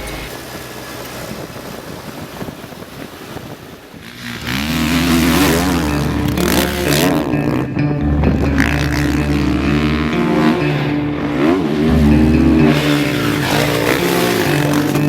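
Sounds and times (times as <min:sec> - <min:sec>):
dirt bike engine revving: 0:00.0 - 0:01.4, 0:04.0 - 0:15.0
rushing noise: 0:00.0 - 0:01.4.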